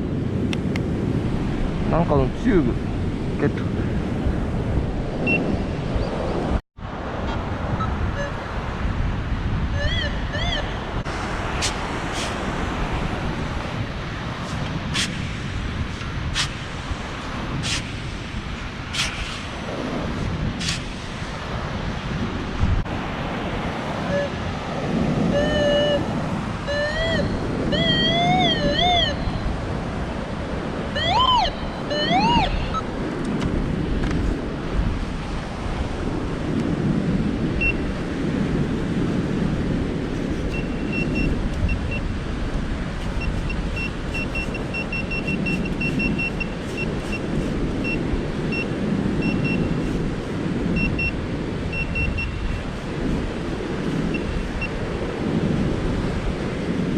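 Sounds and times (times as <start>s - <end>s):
wind on microphone: 0.0s - 56.9s
short high beeps: 5.3s - 5.5s, 7.8s - 8.4s, 24.1s - 24.4s, 25.3s - 26.0s, 26.7s - 29.4s, 31.0s - 32.9s, 40.5s - 42.0s, 43.0s - 49.8s, 50.8s - 51.1s, 51.7s - 52.6s
wavering whistled calls: 9.8s - 10.8s, 25.3s - 29.4s, 31.0s - 32.8s
surf washing on sand: 10.9s - 28.6s, 29.4s - 31.0s, 31.6s - 56.9s.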